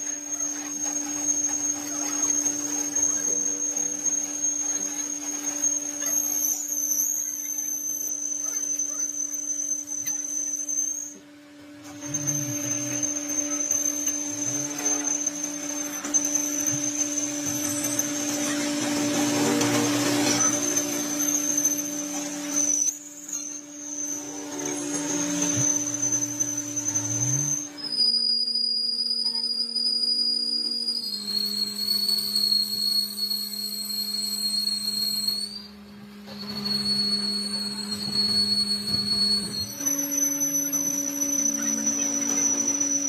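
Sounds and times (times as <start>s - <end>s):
machine motor humming and whining: 0.0s - 43.0s
cutting or grinding noise: 11.8s - 27.9s.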